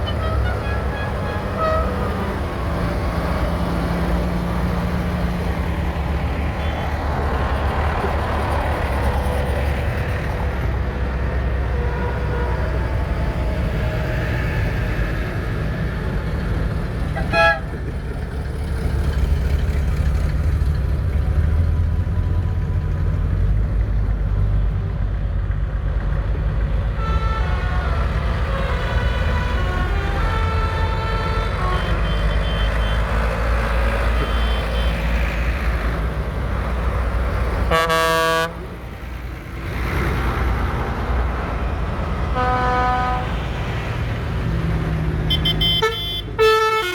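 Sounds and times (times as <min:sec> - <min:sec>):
horn toots: 0:00.0 - 0:02.3, 0:17.1 - 0:17.8, 0:27.0 - 0:33.2, 0:37.7 - 0:38.7, 0:42.4 - 0:43.4, 0:45.3 - 0:46.9
tractor engines driving past: 0:00.0 - 0:46.9.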